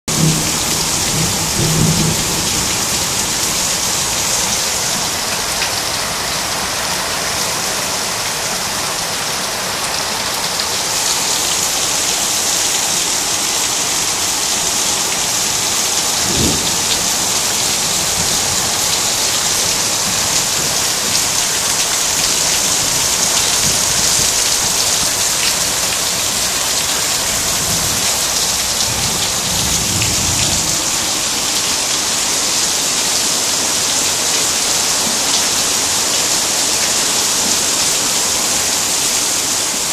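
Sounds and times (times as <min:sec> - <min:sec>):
heavy rain on standing water: 0:00.1 - 0:39.9.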